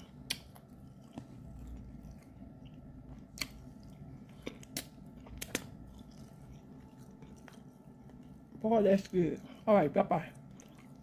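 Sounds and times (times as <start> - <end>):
person chewing: 0.0 - 9.6, 10.3 - 11.0
mouth clicks and smacks: 4.4 - 5.8.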